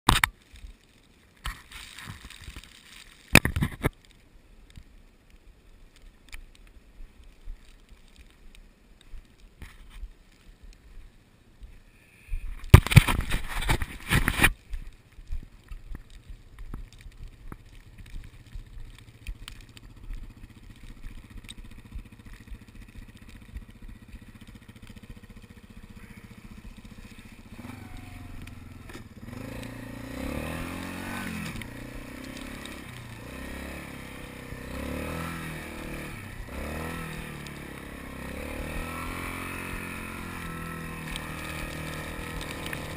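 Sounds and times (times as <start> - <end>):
atv engine running: 12.8 - 42.9.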